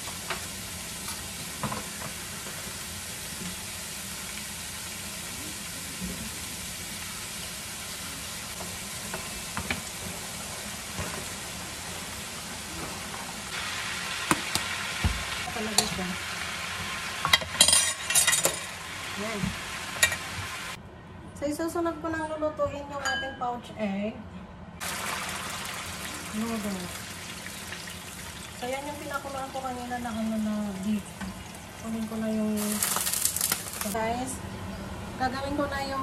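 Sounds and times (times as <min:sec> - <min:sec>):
vegetables sizzling in oil: 0:00.0 - 0:20.8, 0:24.8 - 0:34.1.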